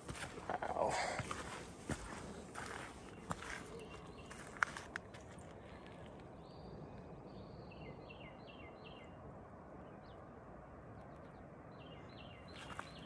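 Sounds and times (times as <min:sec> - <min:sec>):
small songbird singing: 0:06.3 - 0:09.2.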